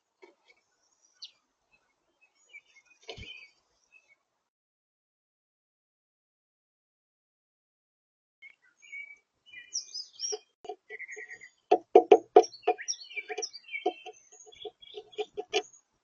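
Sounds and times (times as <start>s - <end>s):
small songbirds chirping: 0.2s - 4.3s, 8.4s - 16.0s
sharp close taps and knocks: 11.7s - 15.6s.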